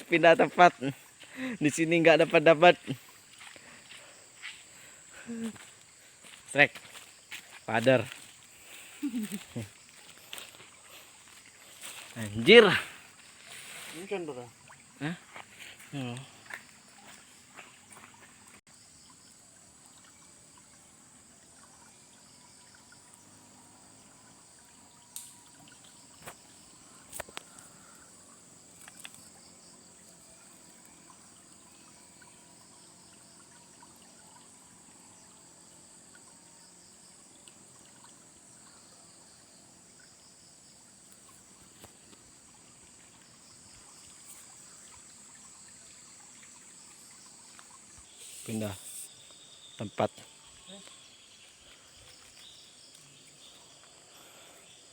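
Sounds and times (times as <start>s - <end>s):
insects chirring: 0.0s - 54.9s
river water trickling: 0.0s - 54.9s.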